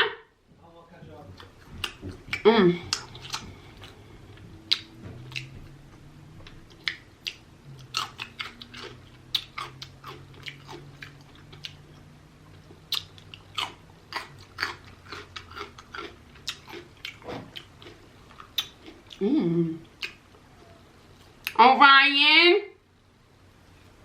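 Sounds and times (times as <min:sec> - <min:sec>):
person chewing: 0:01.3 - 0:05.8, 0:06.4 - 0:21.6
wet mouth clicks and smacks: 0:04.6 - 0:05.5, 0:12.7 - 0:13.5.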